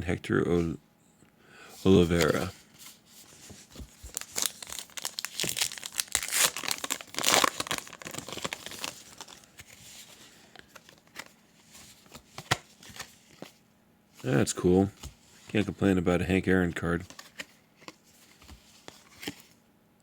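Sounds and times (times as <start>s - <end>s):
wrapper tearing and crinkling: 4.0s - 9.6s.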